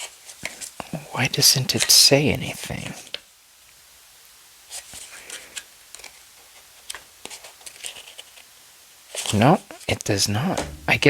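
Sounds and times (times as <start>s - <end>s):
paper pages rustling: 6.8s - 8.4s.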